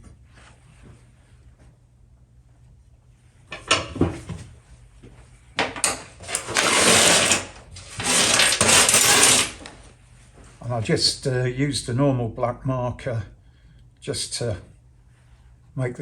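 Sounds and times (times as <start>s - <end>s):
steel tube scraping against metal: 6.2s - 9.6s.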